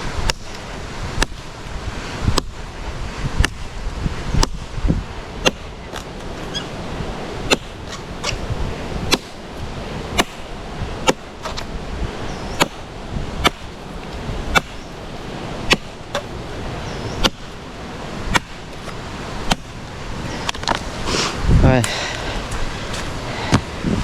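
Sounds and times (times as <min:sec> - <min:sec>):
blade chopping wood: 0:01.2 - 0:01.5, 0:04.4 - 0:04.6, 0:05.4 - 0:11.7, 0:12.4 - 0:19.8.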